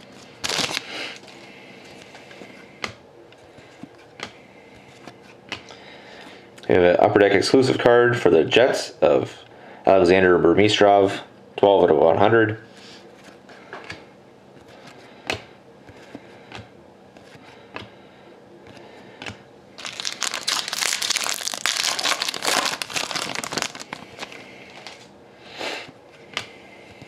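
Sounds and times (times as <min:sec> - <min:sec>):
foil wrapper crinkling: 0:00.0 - 0:01.3, 0:19.8 - 0:25.1.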